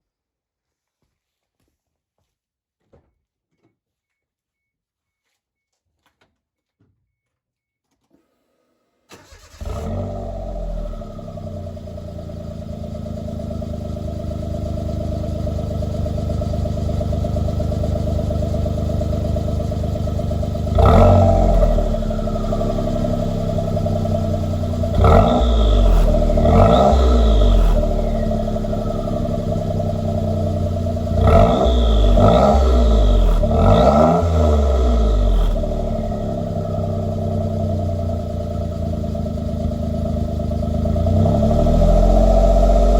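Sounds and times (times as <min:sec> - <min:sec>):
car engine idling and revving: 0:09.2 - 0:42.9.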